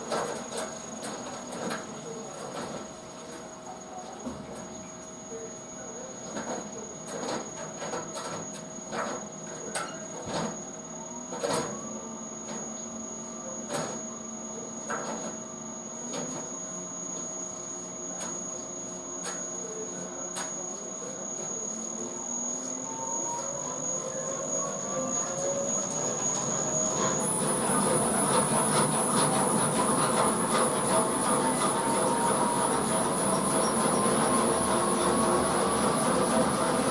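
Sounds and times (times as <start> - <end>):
washing machine motor whine: 0.0 - 36.9
rising spin whine: 22.0 - 36.9.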